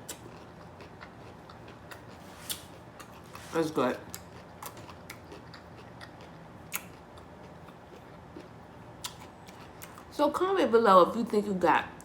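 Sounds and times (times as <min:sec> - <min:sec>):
person chewing: 0:00.0 - 0:03.5, 0:04.1 - 0:10.1.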